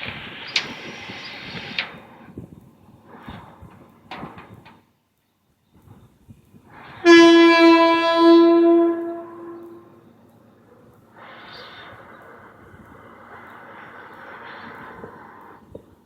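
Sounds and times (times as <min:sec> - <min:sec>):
train rumbling past: 0:00.0 - 0:05.0, 0:05.7 - 0:16.0
locomotive air horn blast: 0:06.8 - 0:10.1.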